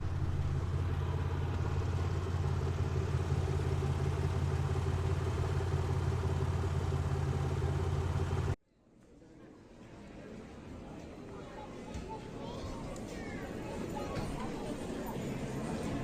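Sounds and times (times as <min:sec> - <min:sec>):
jet engine drone: 0:00.0 - 0:08.6.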